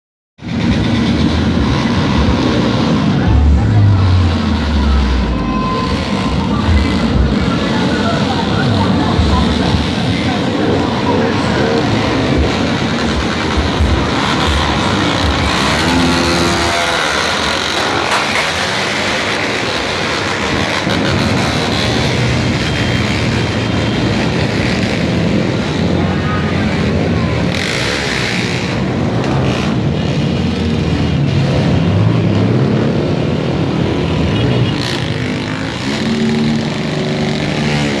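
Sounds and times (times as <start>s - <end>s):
motorcycle engines running: 0.4s - 38.0s.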